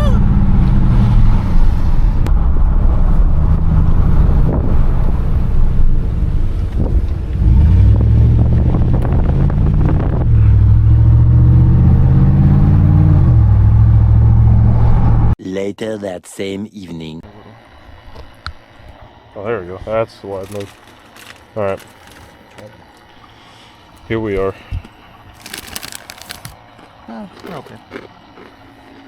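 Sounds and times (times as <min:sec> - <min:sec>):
loud pickup truck exhaust: 0:00.0 - 0:15.4
wind noise: 0:00.1 - 0:12.0.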